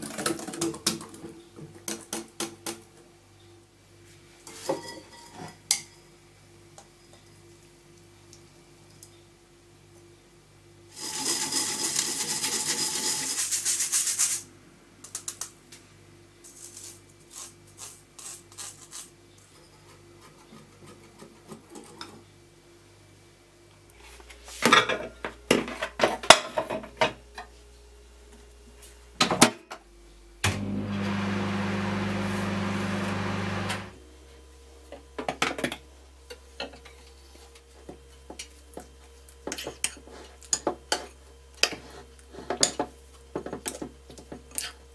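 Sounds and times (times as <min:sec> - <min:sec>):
whisk scraping through mesh sieve: 0:11.0 - 0:14.4
microwave oven humming: 0:30.4 - 0:34.1.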